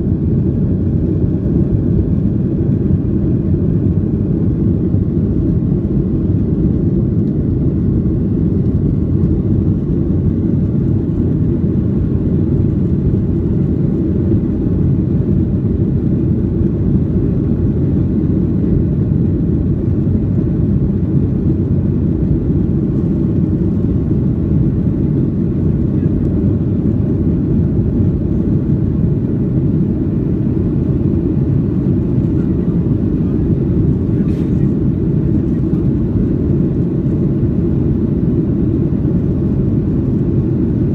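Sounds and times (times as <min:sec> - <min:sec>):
jet engines in airplane cabin: 0:00.0 - 0:40.9.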